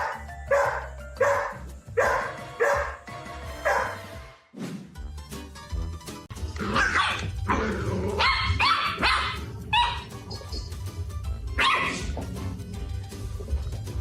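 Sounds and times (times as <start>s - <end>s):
dog barking high-pitched: 0.0s - 3.0s, 3.6s - 4.1s, 6.6s - 7.4s, 8.2s - 10.2s, 11.6s - 12.2s
background music: 0.0s - 14.0s.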